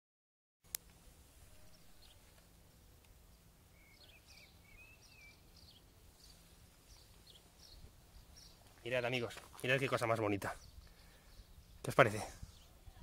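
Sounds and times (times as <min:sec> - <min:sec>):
faint bird chirps: 0:03.7 - 0:08.6.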